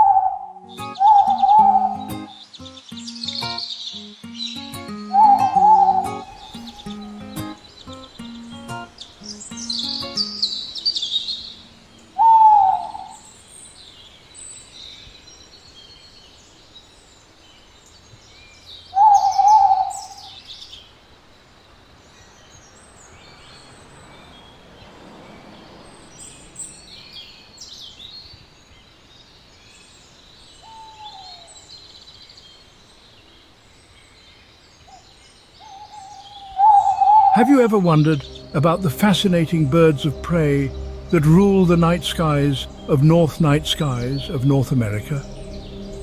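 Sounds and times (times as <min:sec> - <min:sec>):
owl calling: 0:00.0 - 0:02.4, 0:05.1 - 0:13.4, 0:19.0 - 0:20.4, 0:30.6 - 0:31.6, 0:35.6 - 0:46.0.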